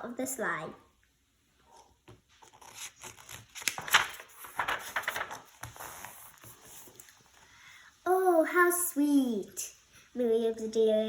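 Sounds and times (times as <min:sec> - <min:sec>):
paper rustling and crinkling: 0:02.3 - 0:07.2.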